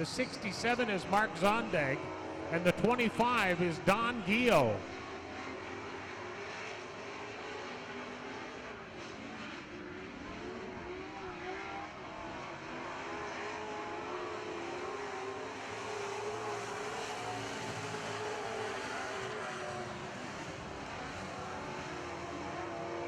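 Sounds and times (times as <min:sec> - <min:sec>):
racing truck engines revving: 0:00.0 - 0:23.0.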